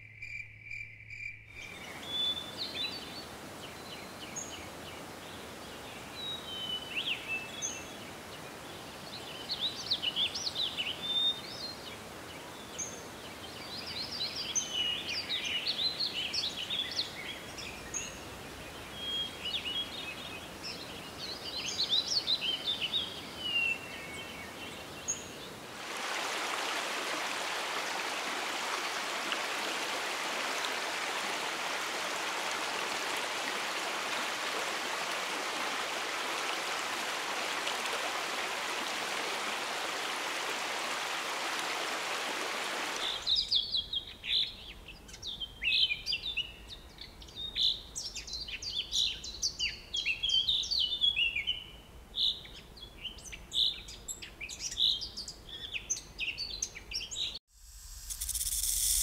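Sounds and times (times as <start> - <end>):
stream tumbling over boulders: 25.6 - 43.3.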